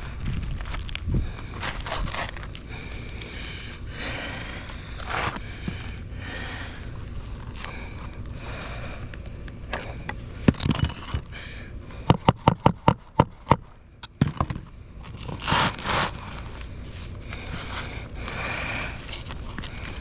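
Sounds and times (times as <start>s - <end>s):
roof shingles scraping and rustling: 15.1s - 18.0s.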